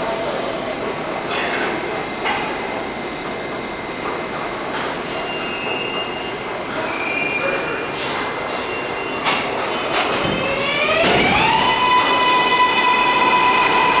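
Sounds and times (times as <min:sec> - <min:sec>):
subway train wheels rumbling: 0:00.0 - 0:14.0
high wheel squeals: 0:04.0 - 0:14.0.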